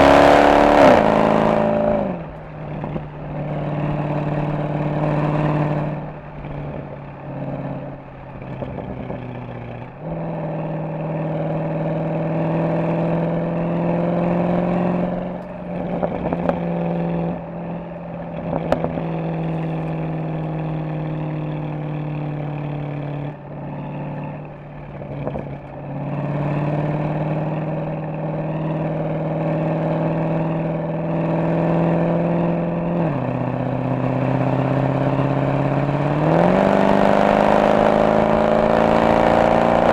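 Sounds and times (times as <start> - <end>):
car engine accelerating: 0.0 - 39.9
exhaust pops and crackles: 15.4 - 16.8, 17.9 - 20.6, 24.4 - 25.9.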